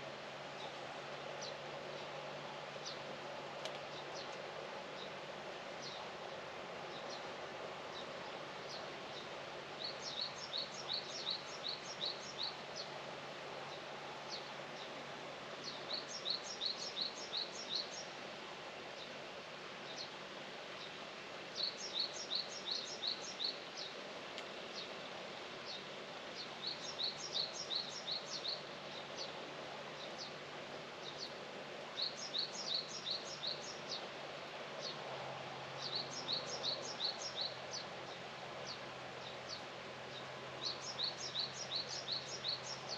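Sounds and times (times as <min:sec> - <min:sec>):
outdoor background hiss: 0:00.0 - 0:42.9
songbird singing: 0:02.8 - 0:04.4, 0:05.8 - 0:06.1, 0:07.9 - 0:13.0, 0:15.6 - 0:18.2, 0:21.6 - 0:24.0, 0:24.8 - 0:34.2, 0:34.8 - 0:35.0, 0:35.7 - 0:42.9.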